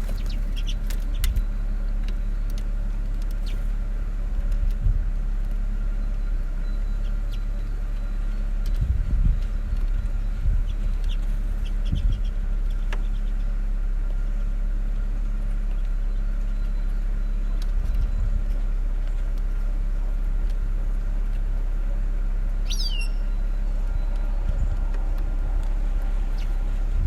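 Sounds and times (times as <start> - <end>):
finches chirping: 0.0 - 1.5, 6.0 - 13.6, 22.5 - 27.0
low mechanical hum: 0.0 - 27.0.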